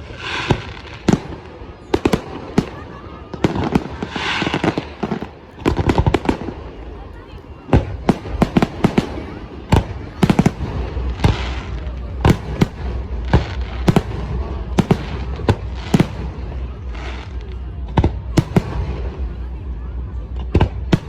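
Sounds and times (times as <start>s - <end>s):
fireworks crackling: 0.0s - 21.0s
low rumble: 9.9s - 21.0s.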